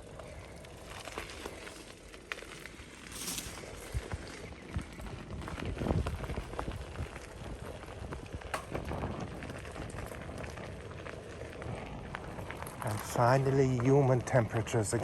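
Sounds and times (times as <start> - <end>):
steady rustling hiss: 0.1 - 4.5.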